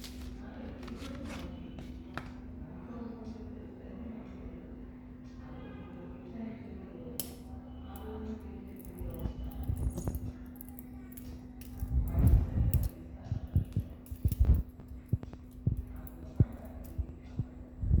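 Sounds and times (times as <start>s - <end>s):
steady low hum: 0.0s - 18.0s
butterfly knife metal clicks: 7.2s - 8.1s.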